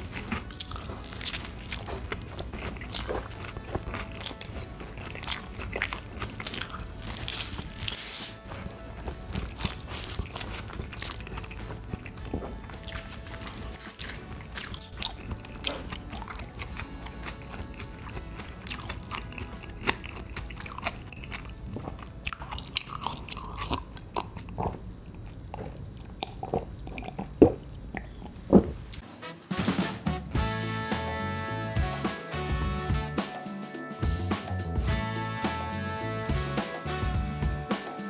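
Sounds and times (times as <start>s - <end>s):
person chewing food: 0.0s - 29.0s.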